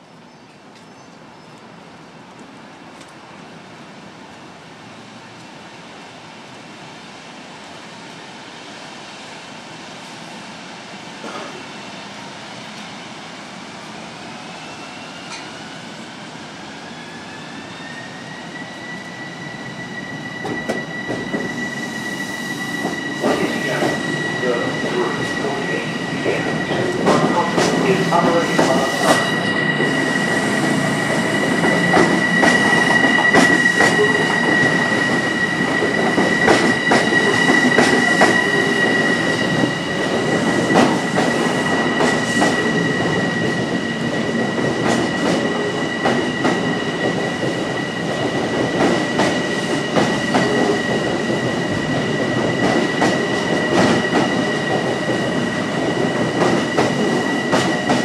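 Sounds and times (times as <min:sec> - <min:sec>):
train rumble: 0:20.4 - 0:58.0.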